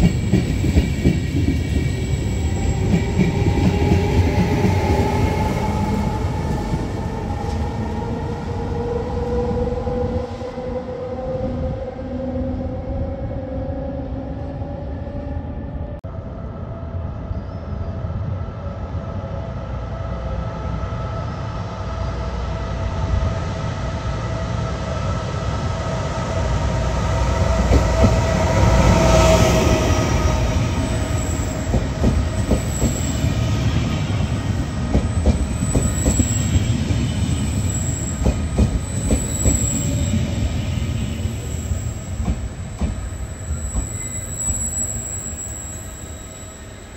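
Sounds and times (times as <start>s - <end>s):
electric locomotive rumble and whine: 0.0s - 46.9s
high brake squeal: 37.3s - 40.4s, 43.0s - 46.9s.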